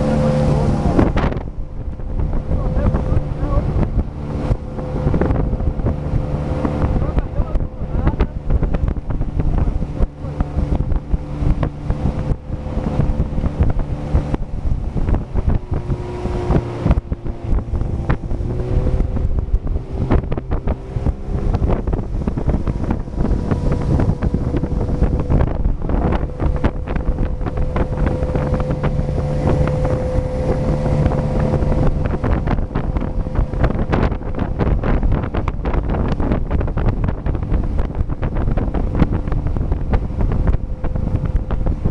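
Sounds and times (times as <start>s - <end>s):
motorboat engine running: 0.0s - 41.9s
wind buffeting microphone: 0.0s - 41.9s.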